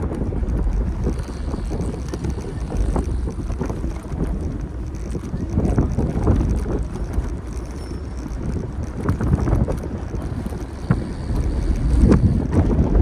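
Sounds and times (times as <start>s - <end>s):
city street noise: 0.0s - 13.0s
wind rumbling on microphone: 0.0s - 13.0s.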